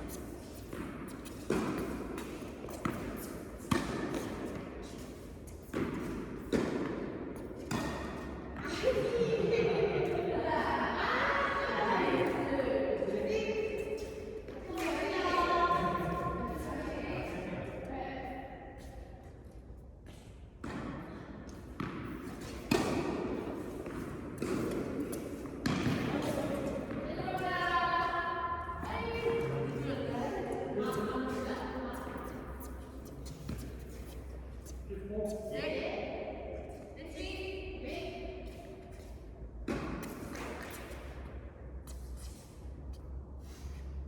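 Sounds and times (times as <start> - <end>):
tennis balls struck by rackets: 0.0 - 8.7, 19.4 - 28.1, 39.6 - 42.0.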